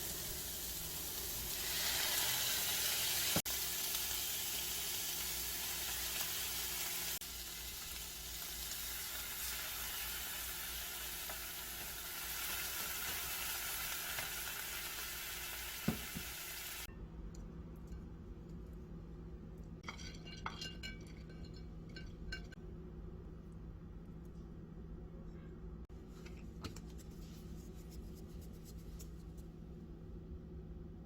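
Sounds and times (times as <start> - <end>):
food sizzling in a pan: 0.0 - 16.9.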